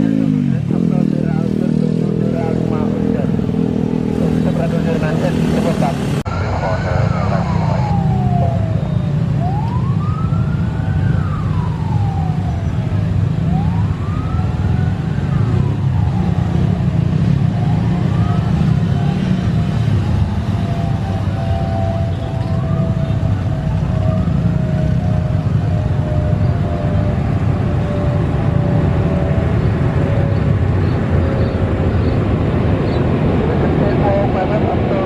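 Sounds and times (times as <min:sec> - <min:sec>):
siren wailing: 0:02.5 - 0:35.0
steady low rumble: 0:04.2 - 0:08.8.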